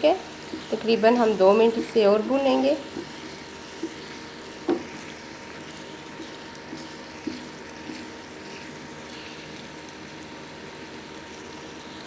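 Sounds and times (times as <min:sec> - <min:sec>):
food sizzling in a frying pan: 0:00.0 - 0:12.0
spatula knocking and scraping pan: 0:00.4 - 0:08.2.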